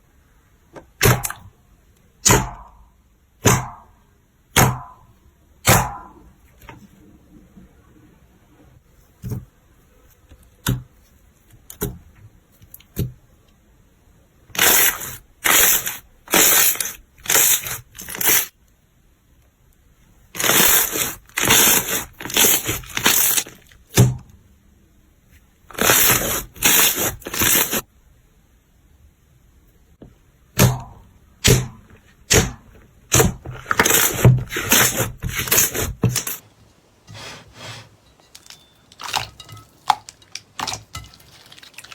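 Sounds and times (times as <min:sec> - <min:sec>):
slime squishing: 0:20.4 - 0:23.8, 0:38.9 - 0:41.9.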